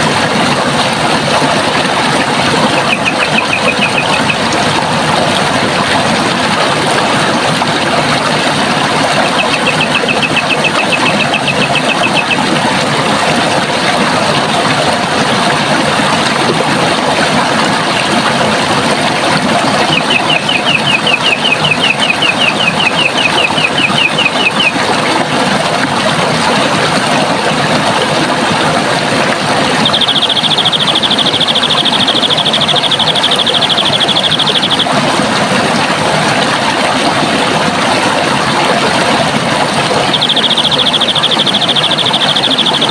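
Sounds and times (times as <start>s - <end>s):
water rushing: 0.0s - 42.9s
bird trilling: 2.7s - 4.4s, 9.2s - 12.5s, 19.9s - 24.7s, 29.8s - 34.9s, 40.1s - 42.9s
higher dense bird trill: 2.7s - 4.4s, 9.2s - 12.5s, 19.9s - 24.8s, 29.8s - 34.9s, 40.1s - 42.9s.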